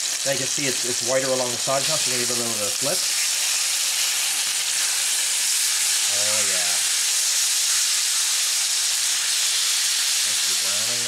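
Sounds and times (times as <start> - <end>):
chicken sizzling in frying pan: 0.0 - 11.0.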